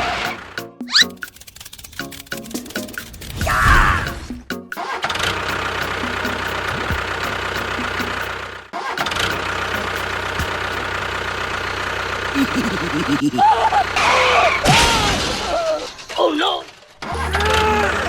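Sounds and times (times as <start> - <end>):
engine running steadily: 5.2 - 14.8.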